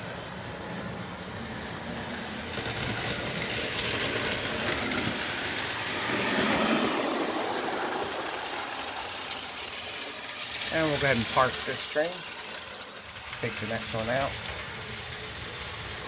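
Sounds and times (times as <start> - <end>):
toy train rolling on track: 0.0 - 16.0.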